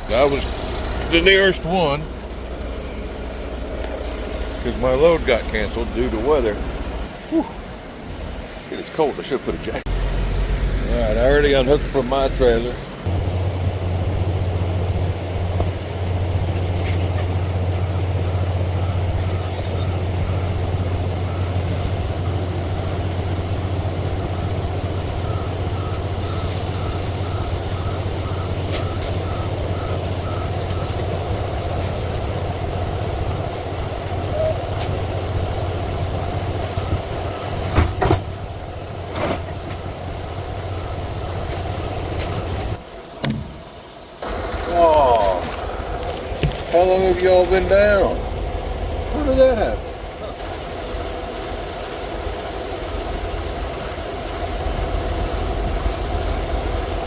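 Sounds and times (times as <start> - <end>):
diesel truck engine running: 0.0 - 57.0
sharp knocks: 43.2 - 43.6.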